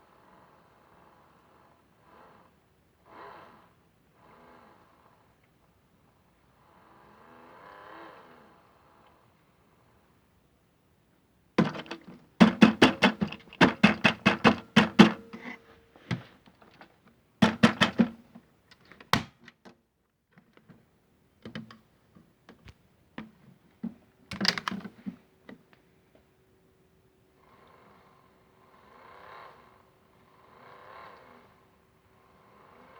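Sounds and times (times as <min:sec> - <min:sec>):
toy washing machine knocking: 0:11.6 - 0:16.8, 0:17.4 - 0:18.3.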